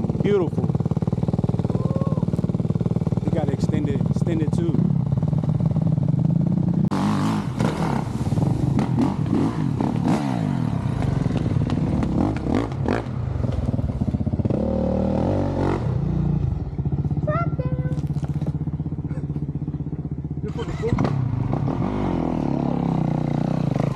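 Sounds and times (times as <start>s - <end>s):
dirt bike engine revving: 0.0s - 23.9s
bike knocking over rough ground: 17.9s - 18.6s.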